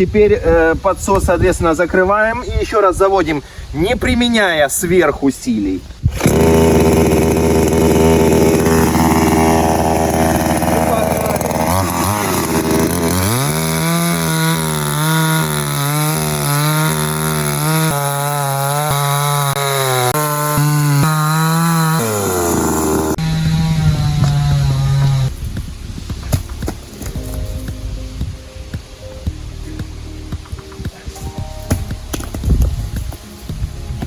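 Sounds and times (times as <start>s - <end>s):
chainsaw idling and revving: 6.1s - 25.3s.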